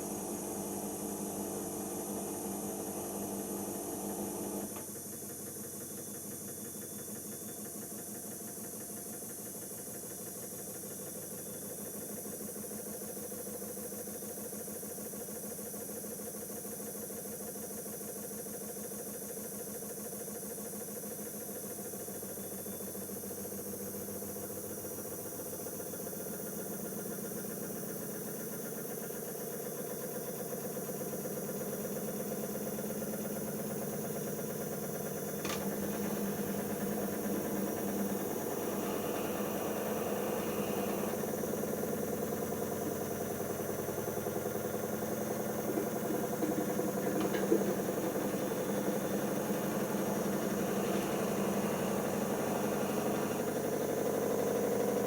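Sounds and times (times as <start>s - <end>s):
washing machine drum spinning: 43.7s - 53.7s.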